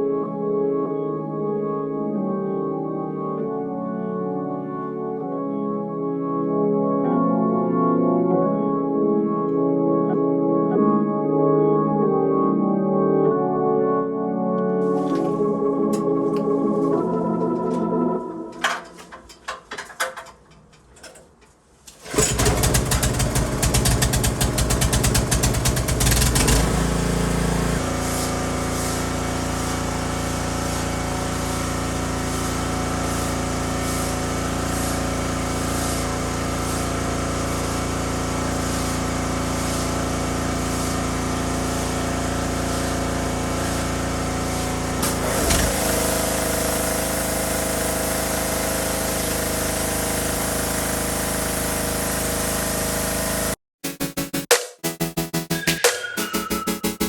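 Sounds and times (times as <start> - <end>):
pressure washer engine running: 22.0 - 53.6.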